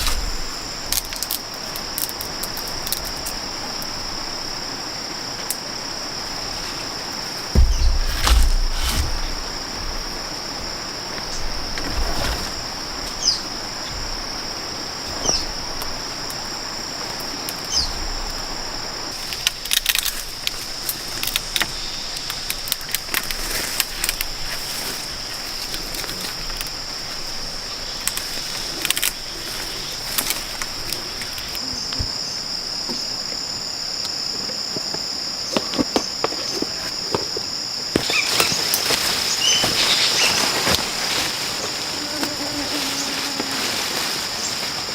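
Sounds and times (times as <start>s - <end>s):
insects droning: 0.0s - 44.9s
sharp clicks and knocks: 7.6s - 9.6s.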